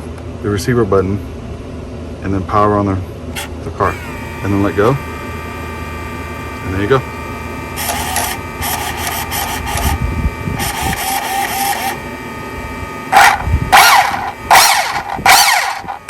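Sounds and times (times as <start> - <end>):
noisy whirring: 0.0 - 16.0
rc car motor whining: 3.4 - 12.4, 13.0 - 16.0.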